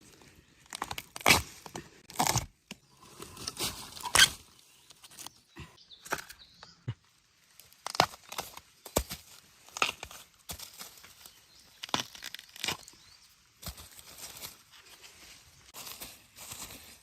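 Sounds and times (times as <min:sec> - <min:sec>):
bamboo shoots cracking: 0:00.6 - 0:05.4, 0:07.5 - 0:13.0
dry leaves rustling: 0:13.6 - 0:17.0.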